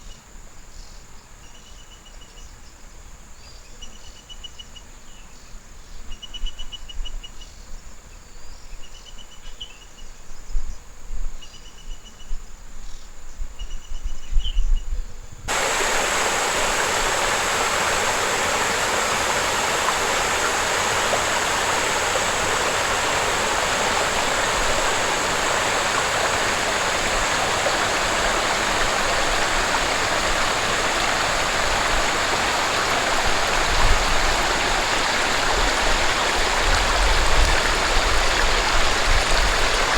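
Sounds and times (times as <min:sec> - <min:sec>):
rush of running water: 0:15.5 - 0:39.9.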